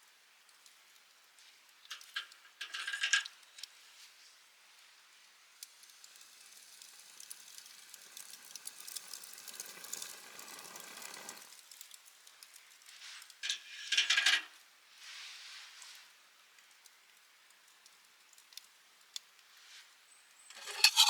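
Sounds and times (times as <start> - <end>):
food sizzling on a grill: 0.0 - 21.0
fire crackling: 4.8 - 14.0, 20.4 - 21.0.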